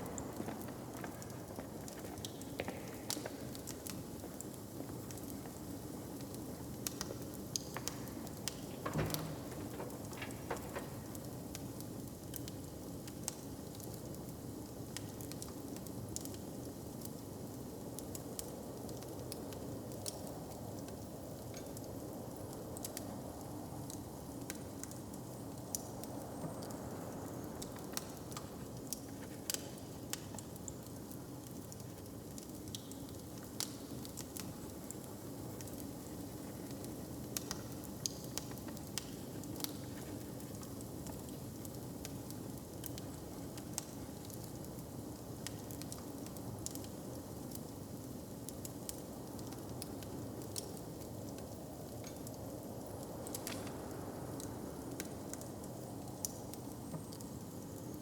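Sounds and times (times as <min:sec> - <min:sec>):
fire popping and snapping: 0:00.0 - 0:58.0
low fire hiss: 0:00.0 - 0:58.0
wood fire crackling: 0:00.0 - 0:58.0.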